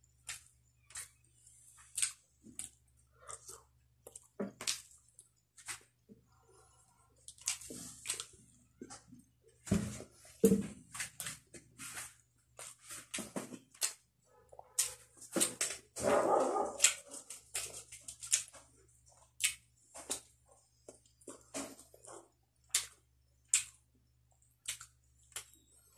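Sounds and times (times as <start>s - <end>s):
chewing food: 0.0s - 9.6s, 12.5s - 25.9s.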